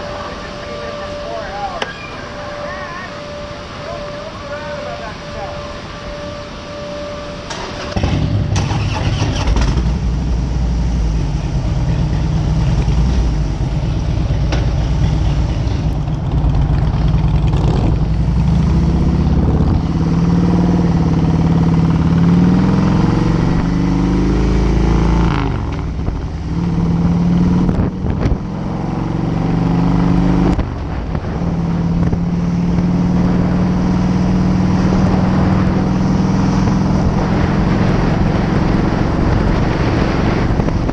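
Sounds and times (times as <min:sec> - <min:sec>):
motorcycle engine shifting gears: 0:07.5 - 0:10.4, 0:11.2 - 0:40.9.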